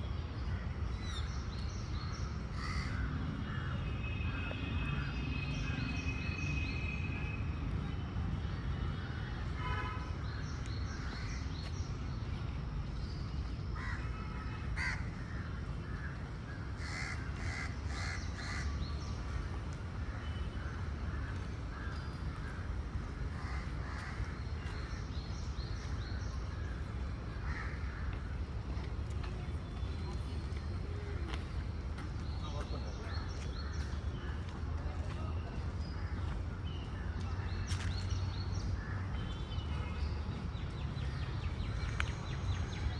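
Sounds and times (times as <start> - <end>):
crows cawing: 2.5 - 3.6, 14.8 - 15.2, 16.8 - 18.7, 27.4 - 28.2.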